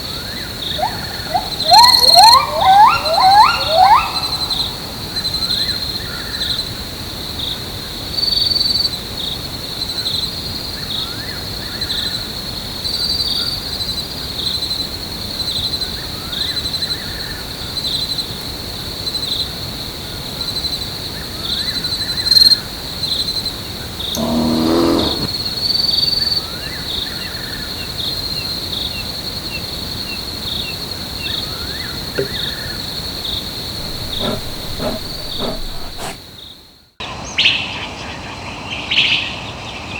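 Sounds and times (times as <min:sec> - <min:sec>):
insects chirring: 0:24.2 - 0:25.4, 0:33.6 - 0:36.2
lower animal call: 0:24.2 - 0:25.4, 0:33.8 - 0:36.2.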